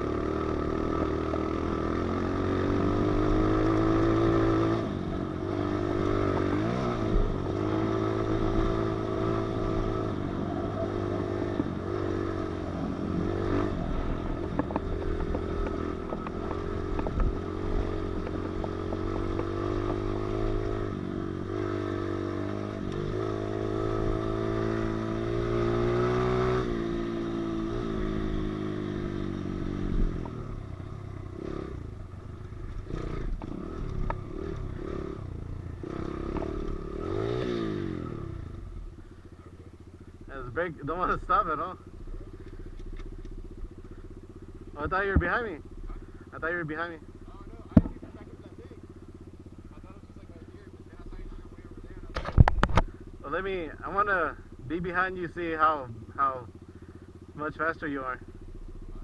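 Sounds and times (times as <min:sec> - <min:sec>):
motorbike engine revving: 0:00.0 - 0:59.0
sharp clacks from bike: 0:52.1 - 0:52.9.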